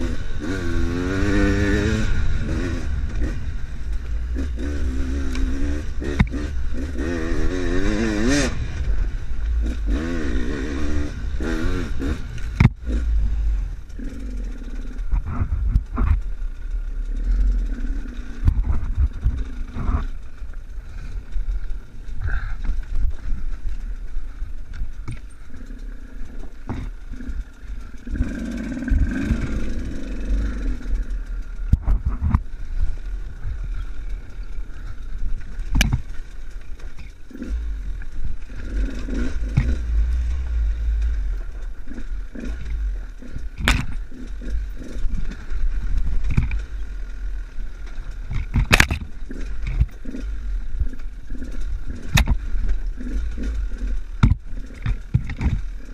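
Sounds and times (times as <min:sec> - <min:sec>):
motorcycle engine revving: 0:00.0 - 0:55.9
bike knocking over rough ground: 0:12.3 - 0:13.1, 0:31.6 - 0:47.0, 0:47.7 - 0:55.9.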